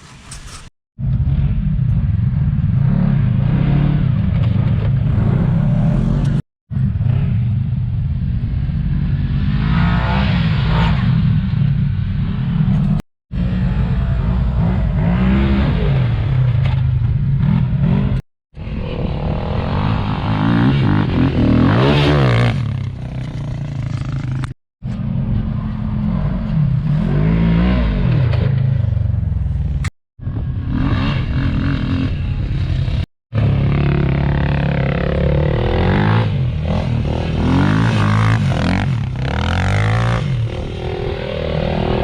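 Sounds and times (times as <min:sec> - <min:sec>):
engine revving: 0:08.8 - 0:16.8, 0:17.4 - 0:23.2, 0:30.4 - 0:42.0.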